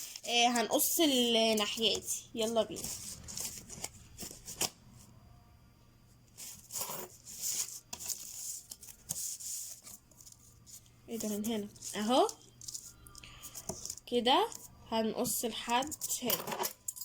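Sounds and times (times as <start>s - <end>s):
paper rustling: 1.5s - 4.7s, 6.4s - 14.0s.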